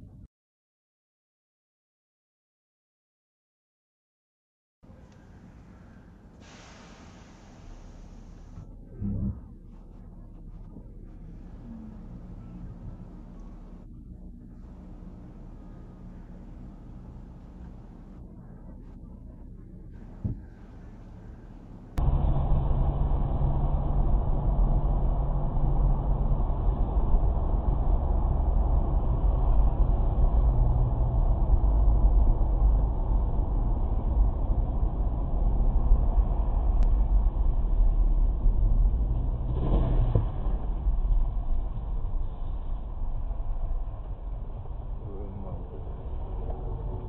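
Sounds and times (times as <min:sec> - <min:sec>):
vehicle engine and road rumble: 0:04.8 - 0:47.0
rushing noise: 0:20.4 - 0:47.0.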